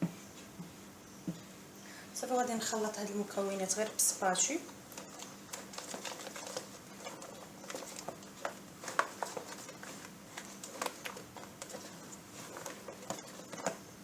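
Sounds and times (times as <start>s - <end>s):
spatula stirring creamy mixture: 3.7s - 14.0s
spatula tapping and scraping bowl: 4.9s - 13.9s.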